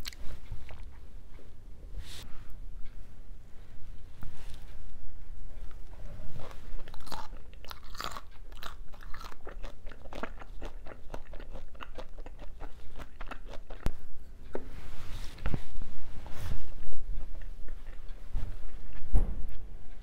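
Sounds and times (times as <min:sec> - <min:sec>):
close chewing with crisp crunches: 0:00.0 - 0:01.4, 0:05.7 - 0:14.7, 0:16.6 - 0:20.0.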